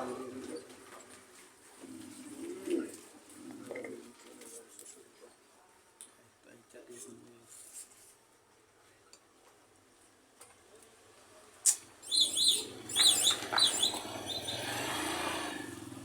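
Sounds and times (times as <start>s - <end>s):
bird chirping: 11.7s - 14.8s.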